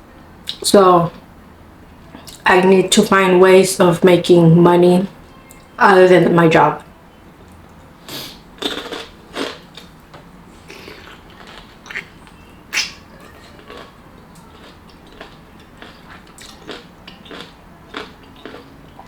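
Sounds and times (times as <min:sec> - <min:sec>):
mouth clicks: 0:08.1 - 0:09.9, 0:10.6 - 0:19.0
person chewing crunchy pickle: 0:08.1 - 0:19.0.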